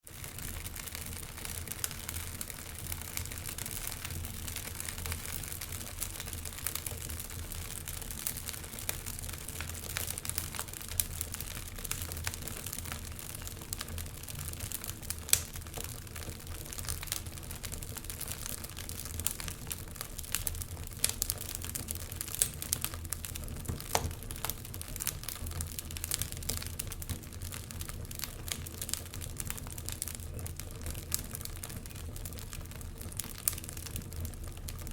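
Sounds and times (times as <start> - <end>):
wood fire crackling: 0.0 - 34.9
sharp pops and snaps: 23.6 - 24.2.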